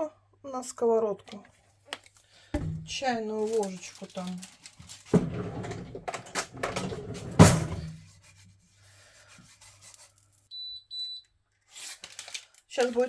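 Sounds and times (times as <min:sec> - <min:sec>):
cookware being moved and rubbed: 0:02.6 - 0:10.3.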